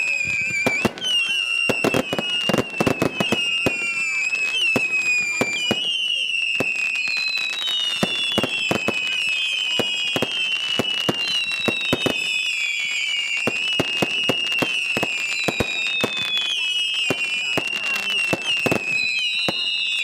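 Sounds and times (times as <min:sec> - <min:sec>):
firework bangs: 0:00.0 - 0:20.0
firework whistles sliding down: 0:00.0 - 0:20.0.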